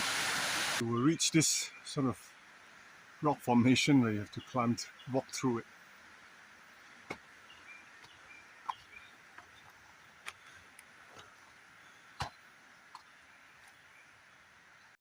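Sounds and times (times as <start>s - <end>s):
insect hiss: 0.0s - 14.9s
knocks and taps on rock: 7.0s - 7.2s, 12.2s - 13.1s.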